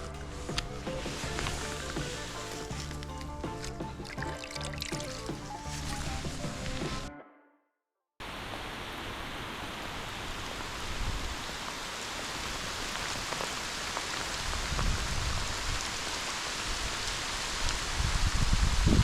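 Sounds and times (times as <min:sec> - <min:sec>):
low rumbles: 0:00.0 - 0:07.1
steady rain falling: 0:00.0 - 0:07.1, 0:08.2 - 0:19.0.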